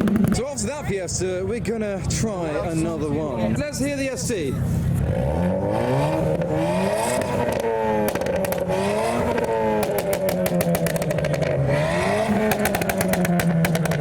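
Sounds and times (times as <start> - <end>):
car engine revving: 4.8 - 14.0
crackling exhaust pops: 7.1 - 11.6, 12.4 - 14.0.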